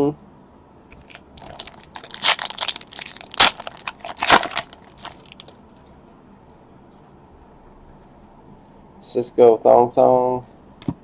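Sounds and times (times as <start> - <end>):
wrapper crinkling as torn open: 1.0 - 5.6.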